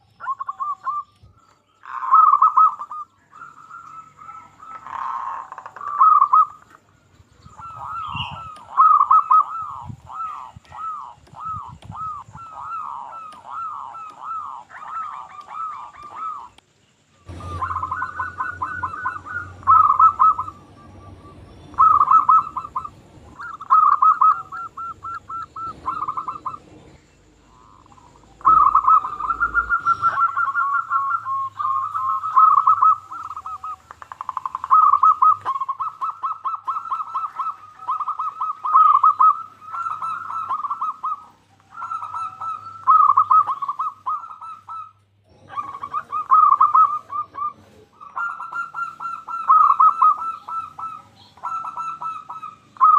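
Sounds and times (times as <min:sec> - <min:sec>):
dove cooing: 0:00.0 - 0:06.8, 0:07.4 - 0:16.6, 0:17.2 - 0:52.9.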